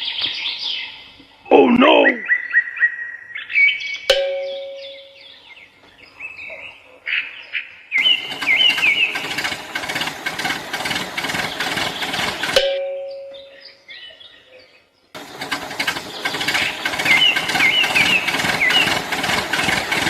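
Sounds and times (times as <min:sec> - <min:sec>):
birds chirping: 0:00.0 - 0:15.2, 0:15.8 - 0:20.0
bell-like ding: 0:04.1 - 0:05.3, 0:12.6 - 0:13.6.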